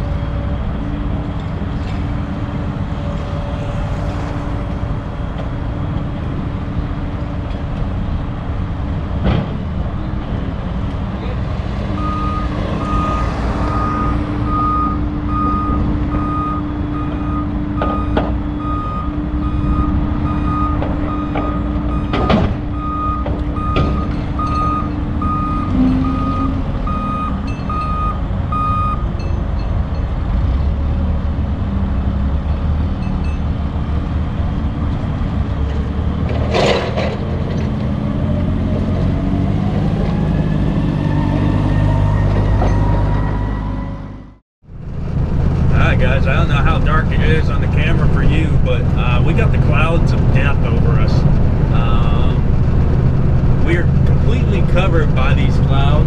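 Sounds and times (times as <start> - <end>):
diesel engine running: 0.0 - 56.0
engine rising in pitch: 11.8 - 29.3, 37.9 - 56.0
reversing alarm beeping: 12.0 - 29.7.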